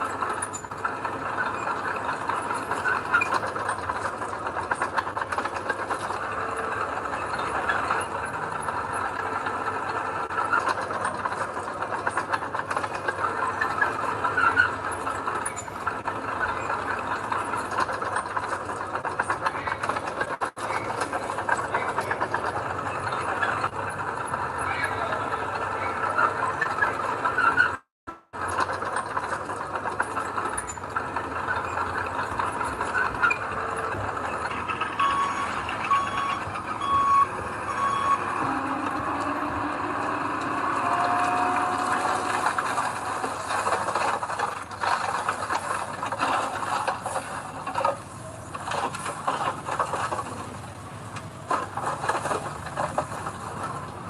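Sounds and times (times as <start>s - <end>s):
heavy machinery engines: 0.0s - 54.0s
reversing alarm beeping: 31.6s - 42.5s.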